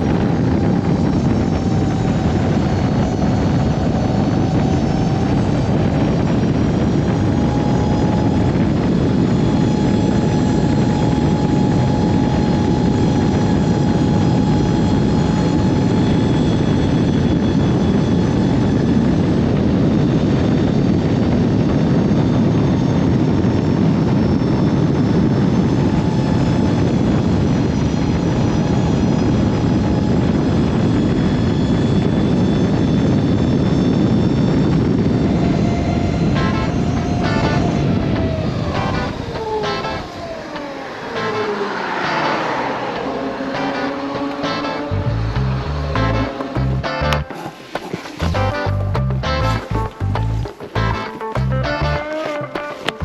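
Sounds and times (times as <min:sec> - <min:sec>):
faint steady whine: 0:00.0 - 0:53.0
vehicle running rumble: 0:40.8 - 0:53.0.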